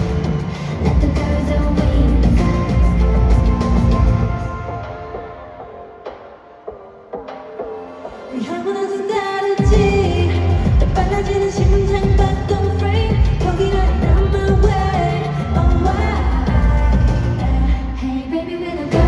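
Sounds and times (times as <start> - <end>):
heavy bass beat: 0.0 - 4.4, 9.6 - 17.7
woman singing: 0.0 - 5.6, 8.2 - 19.0.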